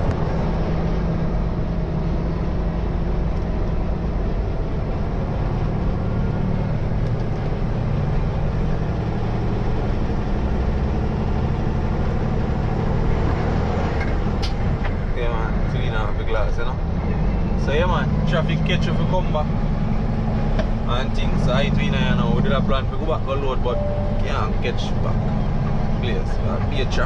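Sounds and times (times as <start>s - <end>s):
truck engine droning: 0.0s - 27.0s
sharp click: 14.4s - 14.7s.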